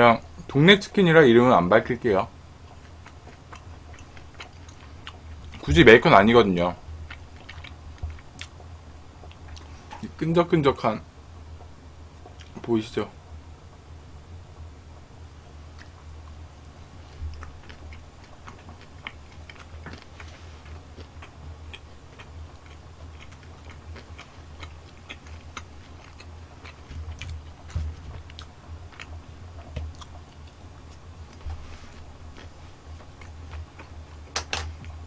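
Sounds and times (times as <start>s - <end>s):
low steady hum: 0.0s - 35.0s
chewing with wet mouth smacks: 2.7s - 5.6s, 7.1s - 8.6s, 17.1s - 31.4s.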